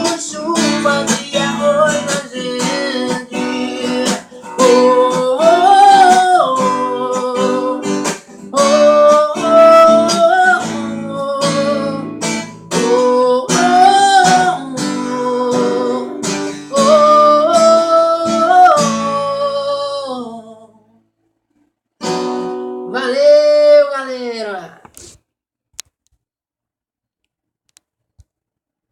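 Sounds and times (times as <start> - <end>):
acoustic guitar strumming: 0.0 - 20.5, 22.0 - 23.9
person singing wordless melody: 0.0 - 21.0, 22.8 - 24.9.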